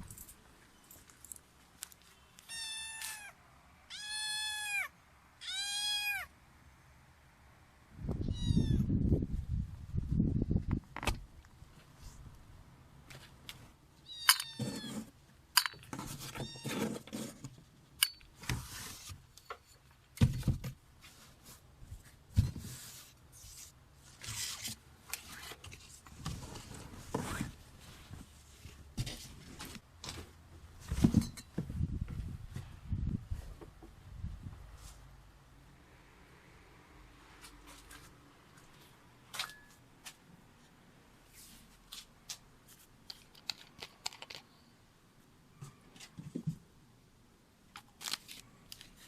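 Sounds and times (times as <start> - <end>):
kitten meowing: 2.5 - 6.3, 8.2 - 8.9.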